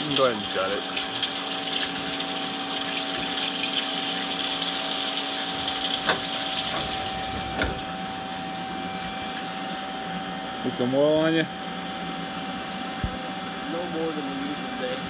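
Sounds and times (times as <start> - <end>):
coolant splashing and hissing: 0.0 - 15.0
machine hum: 0.0 - 15.0.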